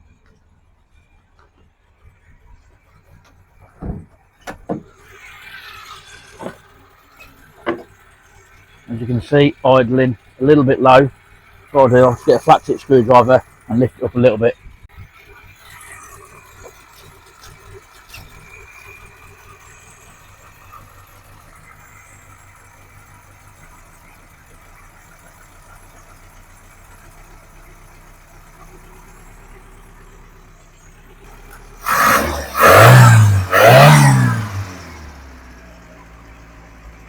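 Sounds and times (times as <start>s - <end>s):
car engine idling: 0.0s - 37.0s
engine revving hard: 11.8s - 14.4s, 31.2s - 35.7s.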